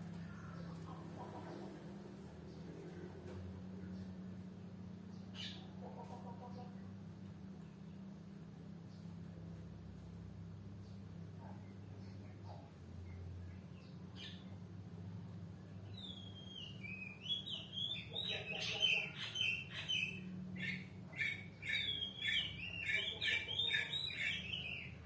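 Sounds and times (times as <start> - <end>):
low steady hum: 0.0 - 25.0
bird warbling song: 15.9 - 25.0.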